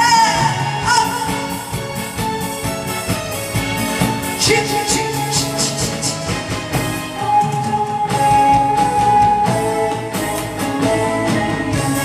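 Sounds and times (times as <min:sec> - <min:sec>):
backing track with steady beat: 0:00.0 - 0:12.0
vibrato note: 0:03.6 - 0:12.0.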